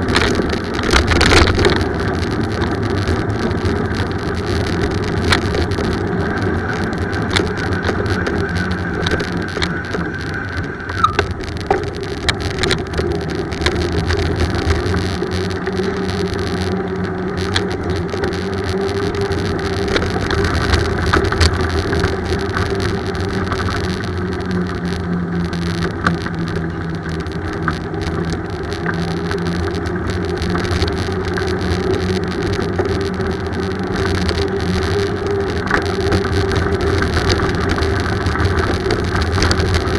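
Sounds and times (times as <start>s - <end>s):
bicycle riding noise: 0.0s - 39.9s
sharp ticks: 0.0s - 39.9s.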